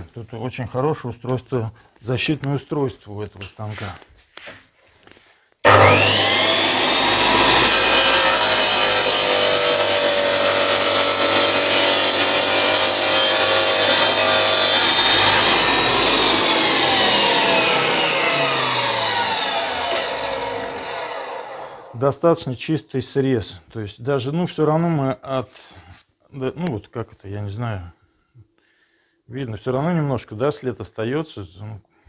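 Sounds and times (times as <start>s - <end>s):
masonry saw whining: 5.6s - 22.0s
saw blade cutting brick: 5.7s - 22.0s.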